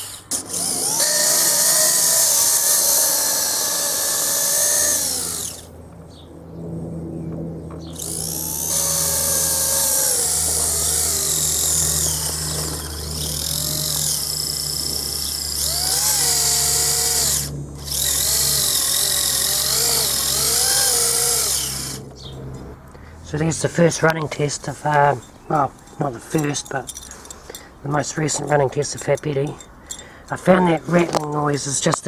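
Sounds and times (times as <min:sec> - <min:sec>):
electric motor whining: 0:00.0 - 0:06.2, 0:07.0 - 0:22.8.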